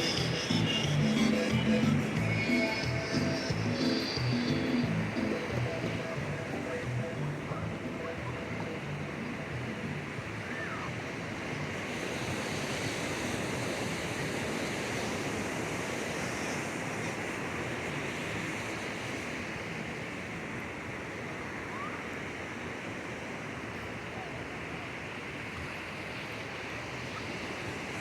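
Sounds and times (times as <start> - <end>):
ocean waves breaking on beach: 0.0 - 28.0.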